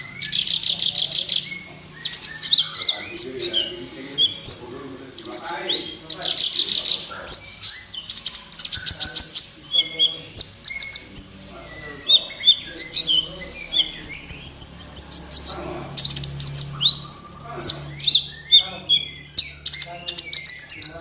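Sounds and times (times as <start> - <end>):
bird singing chirps and trills: 0.0 - 21.0.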